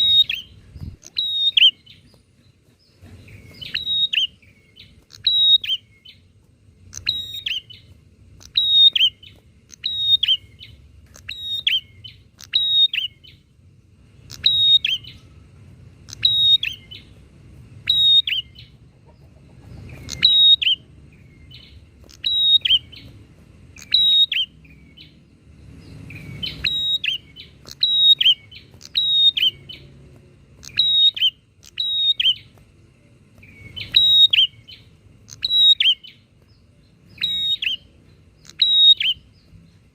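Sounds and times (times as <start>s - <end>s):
birds chirping: 0.0s - 39.9s
faint low hum: 0.0s - 39.9s.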